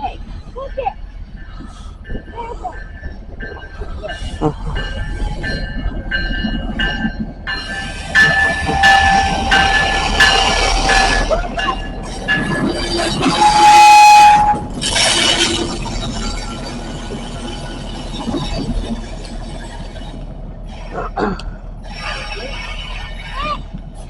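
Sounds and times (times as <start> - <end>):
low rumble of moving train: 0.0 - 24.0
locomotive horn blasts: 8.2 - 11.3, 13.2 - 15.6.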